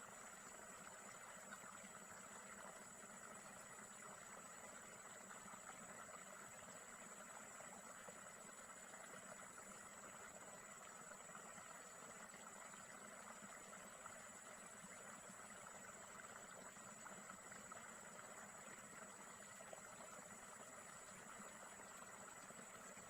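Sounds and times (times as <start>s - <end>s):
outdoor background hiss: 0.0s - 23.0s.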